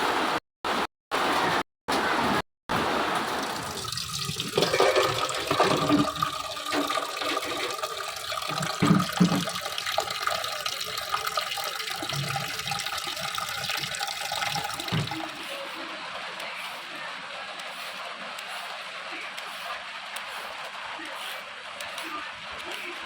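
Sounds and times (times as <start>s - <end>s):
tap water running into sink: 3.1s - 16.7s.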